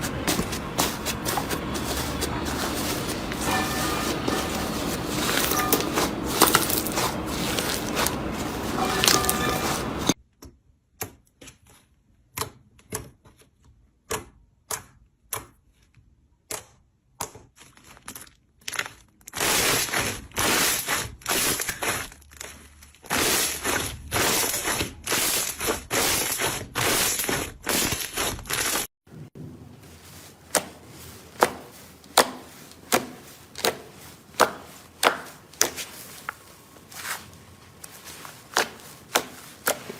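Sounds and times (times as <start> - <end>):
slime squishing: 0.0 - 10.2, 18.7 - 28.8, 29.9 - 39.9.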